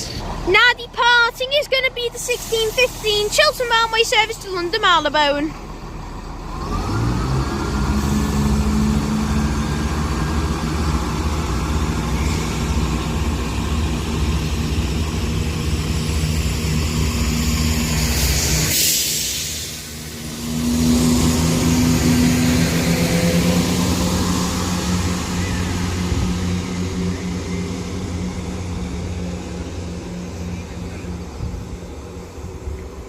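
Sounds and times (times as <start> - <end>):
diesel train engines droning: 0.0 - 33.0
brief hiss: 18.7 - 20.0.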